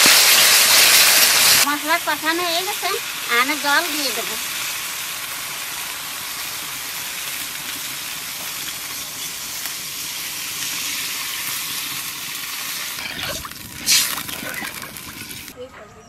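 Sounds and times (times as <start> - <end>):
spice paste sizzling in oil: 0.0 - 15.6
water pouring: 12.2 - 15.6.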